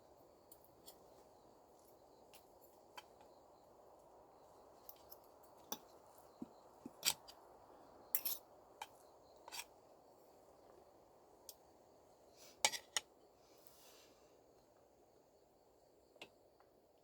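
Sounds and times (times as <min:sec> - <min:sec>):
faint steady hiss: 0:00.0 - 0:17.0
light clicks and clinks: 0:00.4 - 0:03.4, 0:04.8 - 0:07.4, 0:08.1 - 0:09.7.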